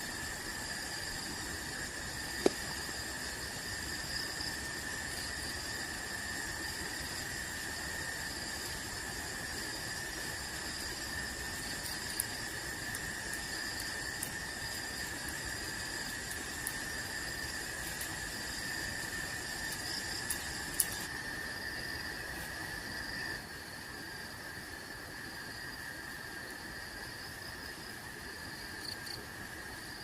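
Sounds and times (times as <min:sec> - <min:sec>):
crickets trilling: 0:00.0 - 0:30.0.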